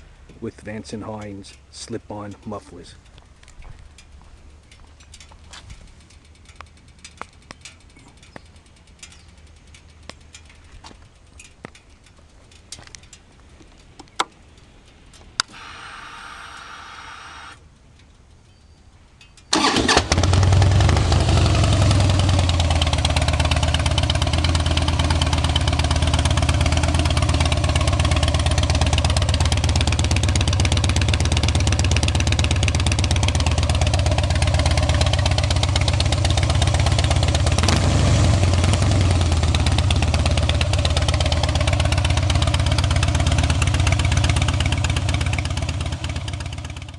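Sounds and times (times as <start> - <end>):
motorcycle engine idling: 2.8 - 18.4, 19.4 - 46.9
faint clicks: 3.0 - 15.6
starter whir: 15.4 - 17.6, 19.5 - 45.1.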